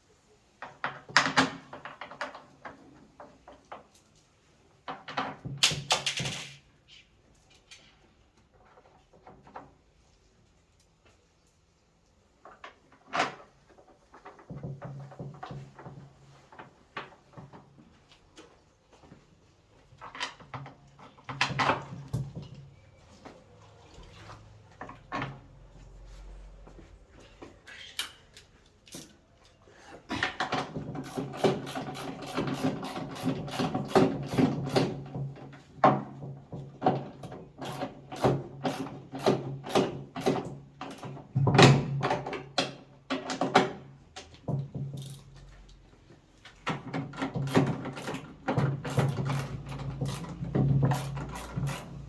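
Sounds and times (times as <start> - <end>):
knocks and clatter of tools: 0.6 - 11.7, 19.9 - 23.4, 27.6 - 45.8, 46.4 - 52.0.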